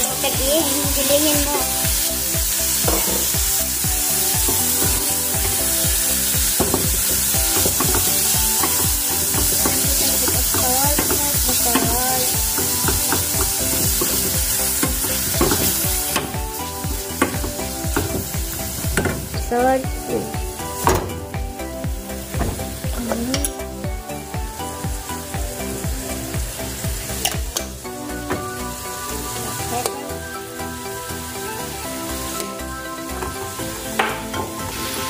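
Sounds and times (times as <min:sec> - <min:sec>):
shrimp sizzling in hot oil: 0:00.0 - 0:35.0
spatula knocking and scraping pan: 0:02.8 - 0:03.5, 0:04.4 - 0:05.8, 0:06.4 - 0:16.4, 0:17.1 - 0:19.4.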